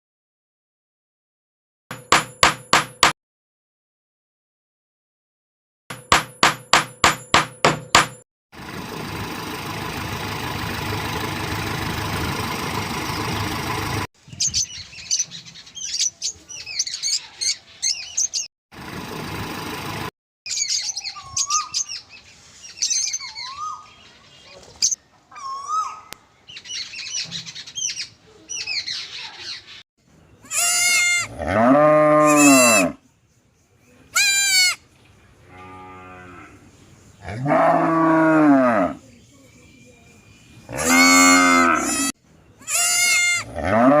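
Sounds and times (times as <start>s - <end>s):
birds chirping: 10.7s - 19.0s, 20.5s - 43.9s
bleating: 30.4s - 33.0s, 34.2s - 34.8s, 40.7s - 44.0s
cattle mooing: 31.0s - 33.0s, 35.5s - 36.6s, 37.2s - 39.0s, 40.7s - 42.1s, 42.8s - 44.0s.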